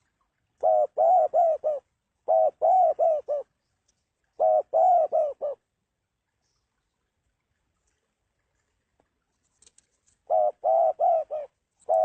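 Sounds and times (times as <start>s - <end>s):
dove cooing: 0.6s - 3.5s, 4.3s - 5.6s, 10.2s - 12.0s.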